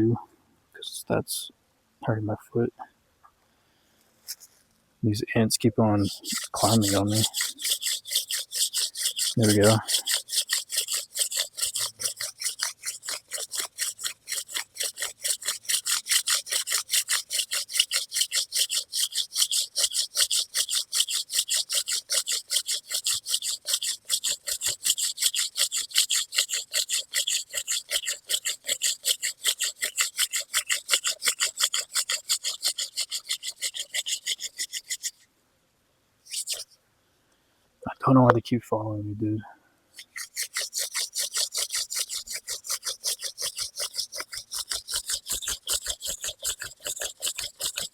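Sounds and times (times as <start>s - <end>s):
hand drill spindle scraping: 6.0s - 35.2s, 36.3s - 36.8s, 40.0s - 47.9s.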